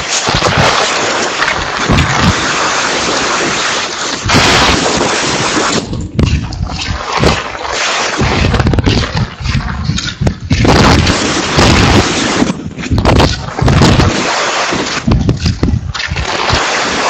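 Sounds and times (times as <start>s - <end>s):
rain: 0.0s - 6.2s, 10.6s - 17.0s
strong wind gusts buffeting microphone: 8.2s - 14.3s, 15.0s - 16.1s.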